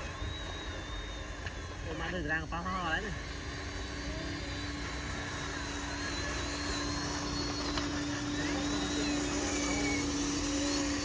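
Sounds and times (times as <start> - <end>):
electric motor low whine: 0.0 - 11.0
high whine wavering in pitch: 0.0 - 11.0.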